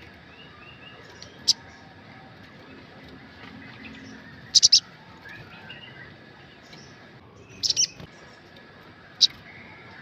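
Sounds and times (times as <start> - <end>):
sunbird sharp high chirps: 4.5 - 4.9, 6.8 - 8.0.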